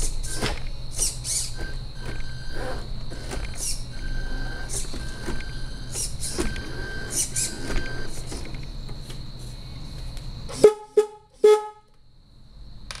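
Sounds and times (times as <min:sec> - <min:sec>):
simulated diesel engine running: 0:00.0 - 0:11.7
reversing beeps: 0:01.6 - 0:02.8, 0:03.4 - 0:08.2
horn toots: 0:10.5 - 0:11.9.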